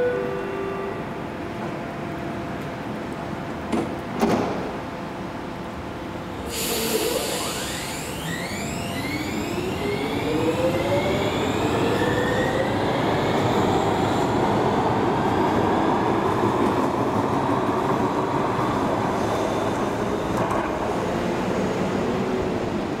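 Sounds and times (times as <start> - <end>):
train rushing and rolling: 0.0 - 23.0
electric traction drive whining: 7.2 - 12.8.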